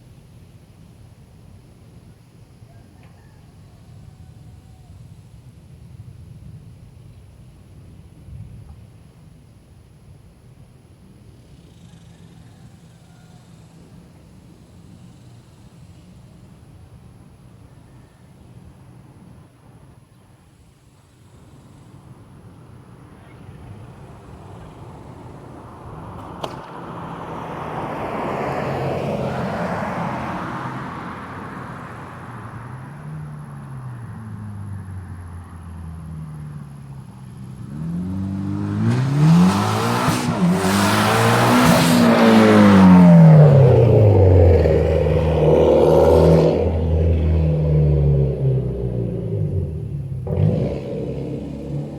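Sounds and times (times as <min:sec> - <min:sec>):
car engine accelerating: 0:23.0 - 0:51.9.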